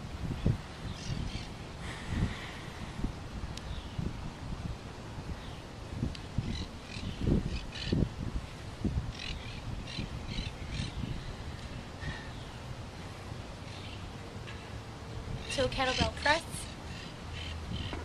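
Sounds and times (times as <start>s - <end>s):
wind buffeting microphone: 0.0s - 14.3s, 15.2s - 18.0s.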